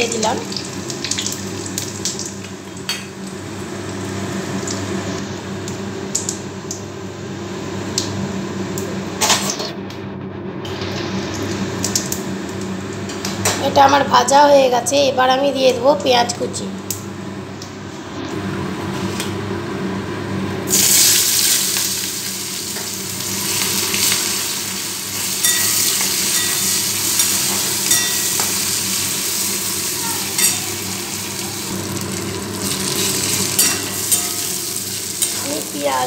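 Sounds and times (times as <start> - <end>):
onions sizzling in hot oil: 0.0 - 6.4, 20.7 - 36.0.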